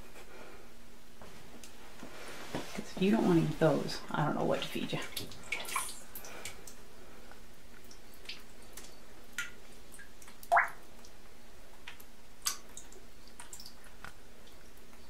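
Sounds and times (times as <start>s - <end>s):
water drips in a tub: 4.9s - 15.0s.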